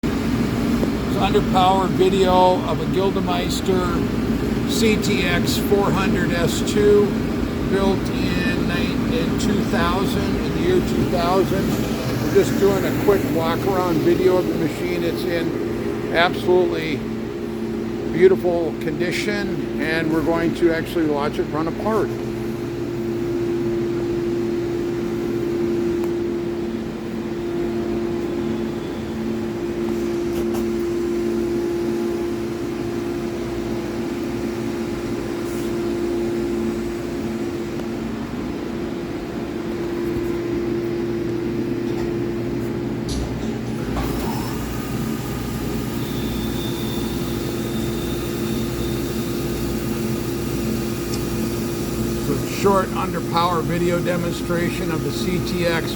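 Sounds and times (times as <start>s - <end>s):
lathe machine hum: 0.0s - 55.9s
faint high whine: 0.8s - 33.9s, 45.4s - 55.9s.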